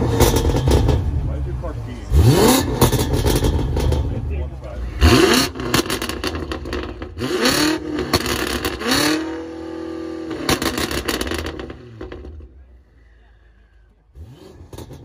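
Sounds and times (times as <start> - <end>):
car engine revving: 0.0 - 12.7, 14.1 - 15.0
exhaust crackle: 0.0 - 12.8.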